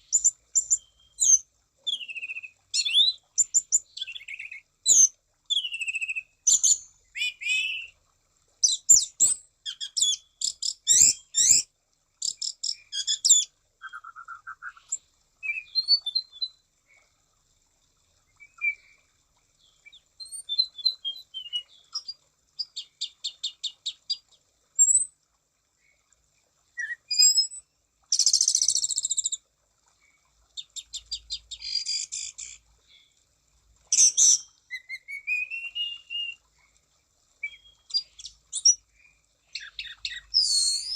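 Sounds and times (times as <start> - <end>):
thrush singing trills and whistles: 12.2 - 16.6, 26.8 - 27.6, 33.9 - 36.4, 37.4 - 38.8, 39.6 - 40.9.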